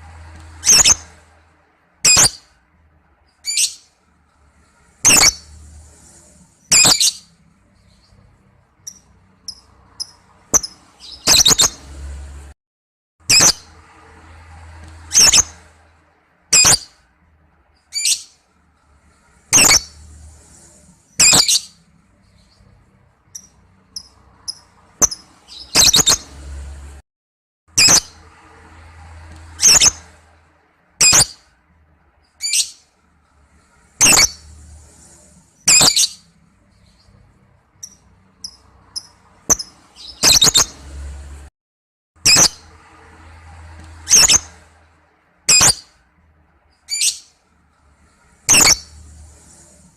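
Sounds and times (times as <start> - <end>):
high bird chirps: 0.5 - 1.2, 2.0 - 2.5, 3.3 - 3.9, 5.0 - 5.7, 6.6 - 8.2, 8.8 - 12.0, 13.3 - 13.7, 15.0 - 15.7, 16.6 - 17.0, 17.8 - 18.4, 19.5 - 20.1, 21.1 - 22.7, 23.3 - 26.4, 27.8 - 28.2, 29.5 - 30.1, 31.0 - 31.4, 32.3 - 32.8, 34.0 - 34.6, 35.6 - 37.2, 37.8 - 40.9, 45.5 - 46.0, 46.8 - 47.3, 48.5 - 49.1
lovebird shrill calls: 0.6 - 1.1, 2.1 - 2.4, 5.0 - 5.5, 6.7 - 7.3, 8.9 - 11.8, 15.1 - 15.6, 16.6 - 16.9, 19.5 - 20.0, 21.2 - 21.7, 27.8 - 28.2, 31.0 - 31.4, 34.0 - 34.4, 35.6 - 36.2, 44.1 - 44.5, 45.5 - 45.8, 48.5 - 48.9
lovebird shrill chattering calls: 0.6 - 1.1, 5.0 - 5.5, 6.7 - 7.2, 19.5 - 20.0, 21.2 - 21.7, 34.0 - 34.4, 35.7 - 36.2, 48.5 - 48.9.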